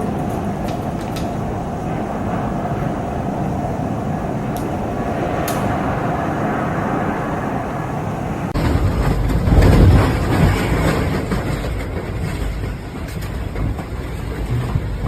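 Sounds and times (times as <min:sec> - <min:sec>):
flood water rushing: 0:00.0 - 0:11.4.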